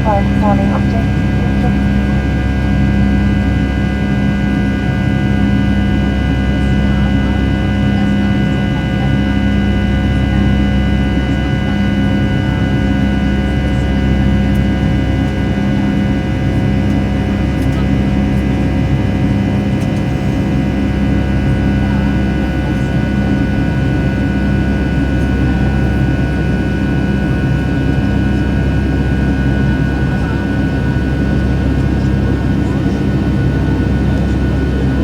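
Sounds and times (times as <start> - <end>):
jet airliner cabin noise: 0.0 - 35.0.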